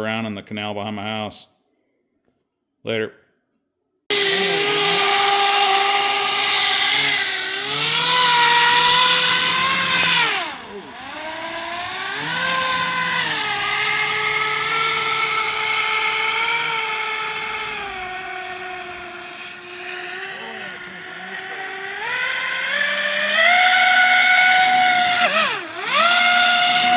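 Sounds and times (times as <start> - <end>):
electric motor whine: 4.1 - 26.9.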